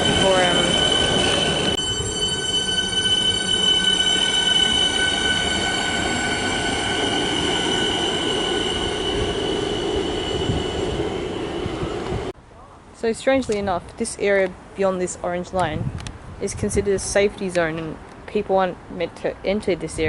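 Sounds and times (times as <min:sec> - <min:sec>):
electric train whine and rumble: 0:00.0 - 0:12.4.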